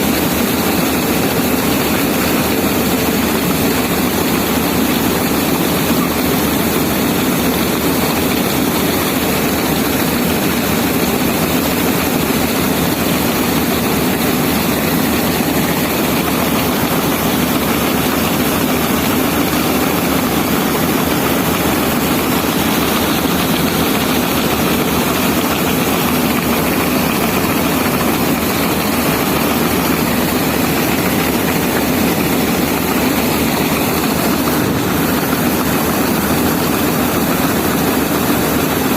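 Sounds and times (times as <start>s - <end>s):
combine harvester droning: 13.2s - 38.5s.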